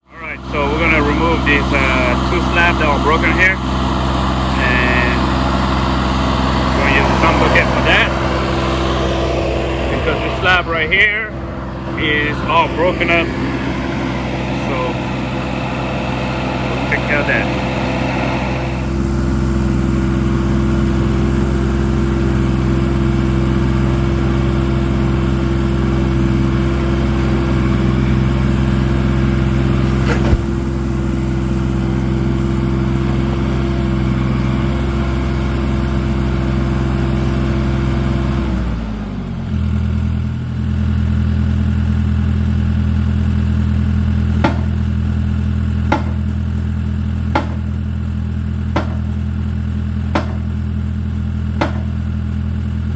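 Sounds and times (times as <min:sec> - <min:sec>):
tractor engine running: 0:00.0 - 0:52.9
sharp knocks: 0:44.4 - 0:44.8, 0:45.9 - 0:46.3, 0:47.3 - 0:47.7, 0:48.8 - 0:49.1, 0:50.1 - 0:50.6, 0:51.6 - 0:52.0.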